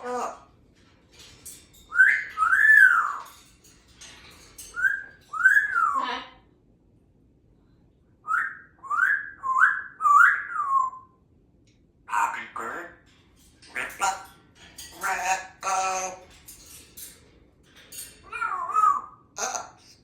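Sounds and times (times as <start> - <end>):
parrot whistling: 1.9 - 3.3, 4.7 - 6.1, 8.3 - 11.1.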